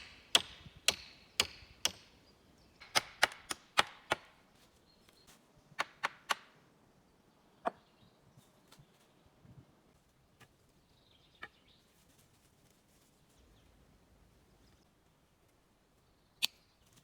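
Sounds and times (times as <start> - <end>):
tool striking wood: 0.0 - 2.1, 2.8 - 4.3.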